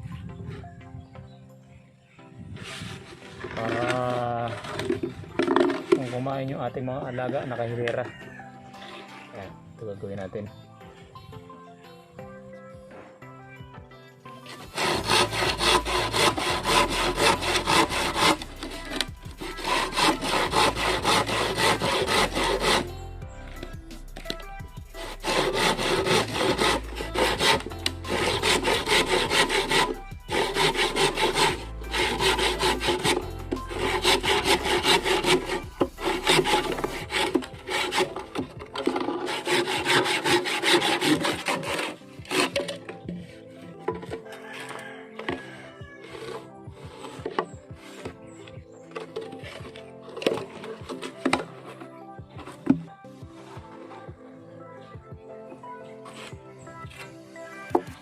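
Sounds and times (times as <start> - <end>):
saw cutting bamboo: 2.6 - 8.2, 14.4 - 51.8, 52.4 - 52.8, 56.1 - 58.0.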